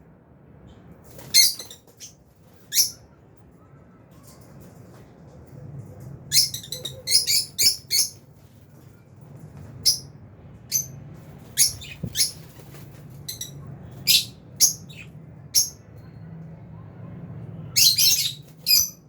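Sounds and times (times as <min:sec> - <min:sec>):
faint low hum: 0:00.0 - 0:19.0
lovebirds chirping: 0:10.7 - 0:15.9.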